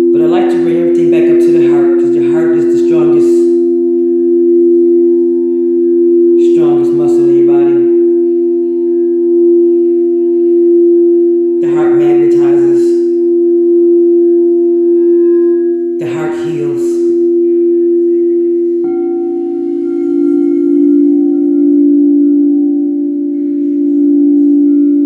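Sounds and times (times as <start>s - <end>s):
singing bowls ringing: 0.0s - 25.0s
low voice singing wordless phrases: 0.2s - 3.6s, 6.4s - 8.0s, 11.6s - 13.2s, 16.0s - 17.3s.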